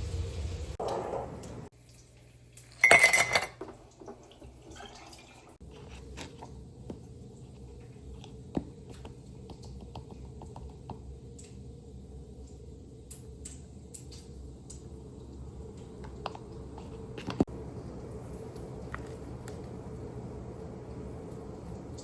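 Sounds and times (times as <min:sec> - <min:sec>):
dishes and cutlery clinking: 0:02.6 - 0:05.0.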